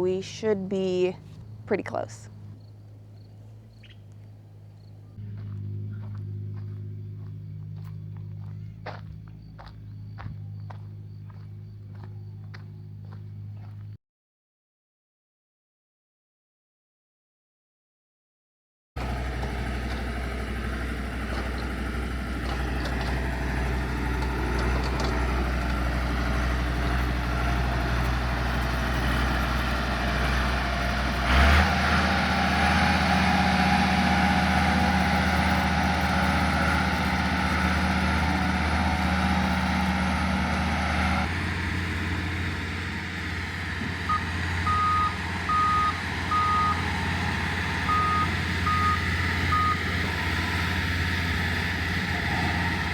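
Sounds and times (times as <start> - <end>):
heavy machine engine running: 0.0 - 13.9, 19.0 - 52.9
reversing alarm beeping: 44.0 - 51.1.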